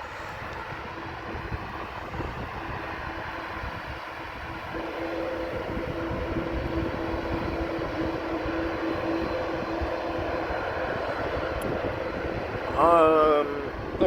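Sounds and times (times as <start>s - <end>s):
jet airliner engines running: 0.0s - 14.0s.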